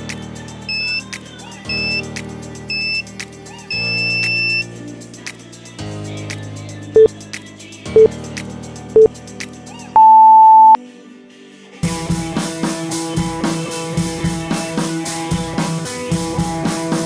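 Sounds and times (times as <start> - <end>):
upbeat music with drum beat: 0.0 - 9.9, 11.8 - 17.0
timer beep: 3.7 - 4.7, 10.0 - 10.8.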